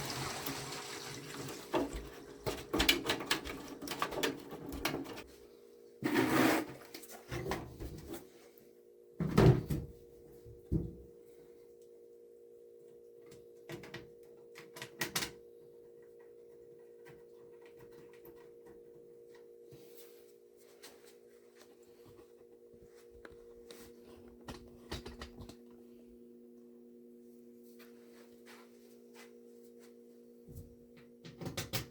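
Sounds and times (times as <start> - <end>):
faint steady hum: 6.7 - 31.9.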